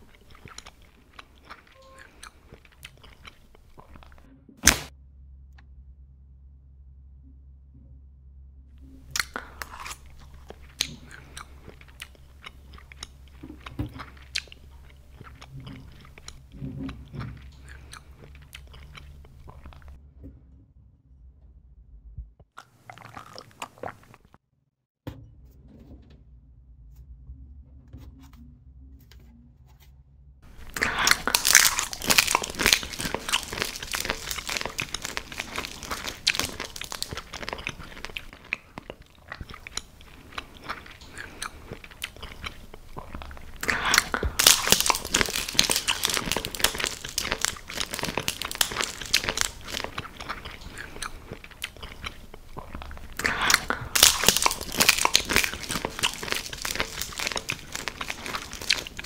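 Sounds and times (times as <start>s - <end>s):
crunchy biting and chewing: 0.0s - 4.9s, 9.0s - 20.0s, 22.6s - 24.4s, 30.4s - 59.0s.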